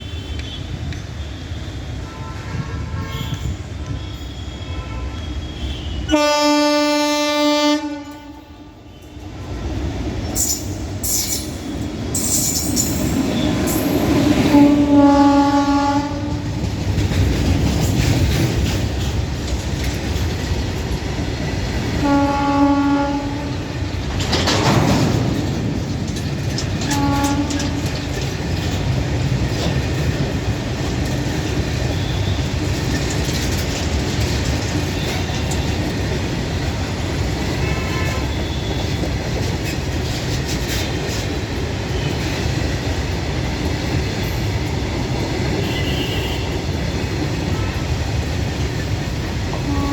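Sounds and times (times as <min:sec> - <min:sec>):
train rumbling with wheel clatter: 0:00.0 - 0:49.9
locomotive horn blast: 0:02.0 - 0:08.7, 0:14.4 - 0:16.6, 0:22.0 - 0:23.7, 0:26.8 - 0:28.1, 0:37.5 - 0:38.9, 0:45.6 - 0:46.7, 0:49.6 - 0:49.9.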